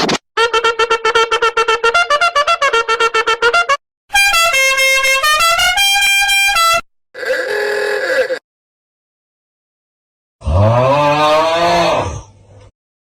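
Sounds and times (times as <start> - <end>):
bright horn-like tune: 0.4 - 6.8.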